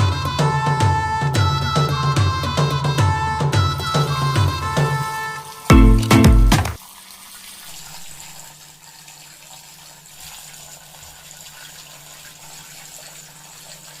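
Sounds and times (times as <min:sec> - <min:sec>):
water trickling from fountain: 0:06.8 - 0:14.0.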